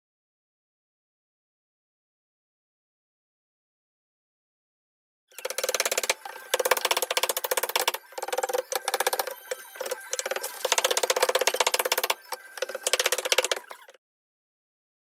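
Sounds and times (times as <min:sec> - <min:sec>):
power tool hammering rattle: 0:05.3 - 0:14.0.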